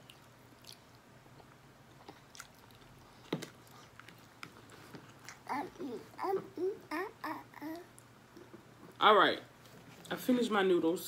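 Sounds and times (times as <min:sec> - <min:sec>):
wet chewing of noodles: 0:00.0 - 0:05.5.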